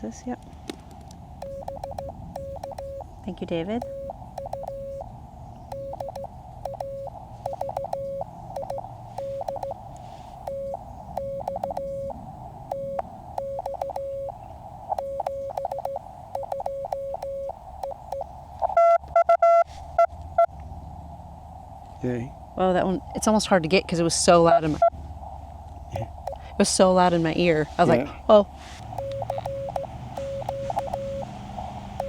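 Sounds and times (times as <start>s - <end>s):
morse code tones: 1.4s - 3.1s, 3.8s - 5.1s, 5.7s - 20.1s, 26.2s - 26.6s, 28.8s - 31.4s
receiver hiss: 3.8s - 20.1s, 24.8s - 28.0s, 28.6s - 32.0s.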